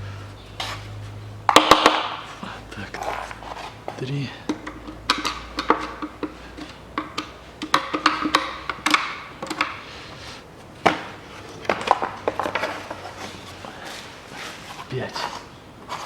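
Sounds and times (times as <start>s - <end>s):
screwdriver clicking and tapping: 4.5s - 9.8s.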